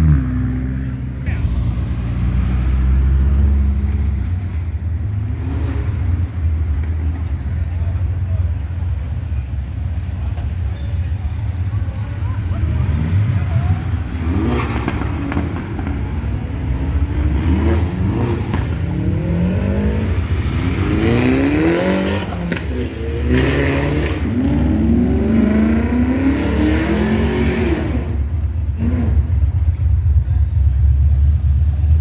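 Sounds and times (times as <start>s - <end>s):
low engine rumble: 0.0s - 26.2s, 27.8s - 32.0s
car engine revving hard: 12.5s - 29.4s.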